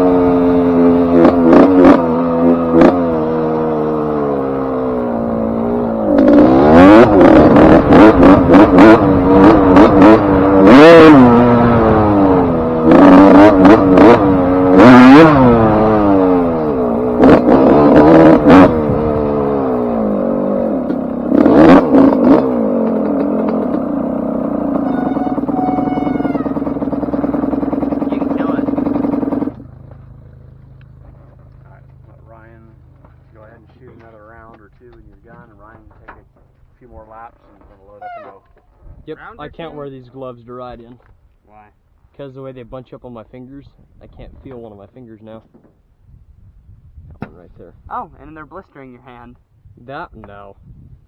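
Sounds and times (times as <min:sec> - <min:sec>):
motocross engine revving: 0:00.0 - 0:30.4.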